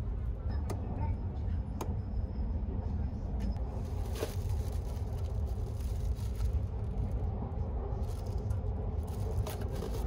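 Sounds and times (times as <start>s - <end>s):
train low rumble: 0.0s - 10.0s
plastic wrapper rustling: 3.7s - 7.2s, 8.0s - 10.0s.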